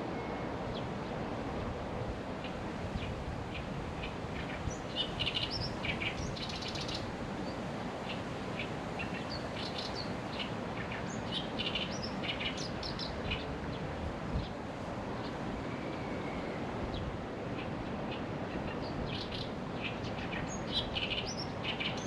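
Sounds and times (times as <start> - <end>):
small birds chirping: 2.4 - 13.8, 17.6 - 22.0.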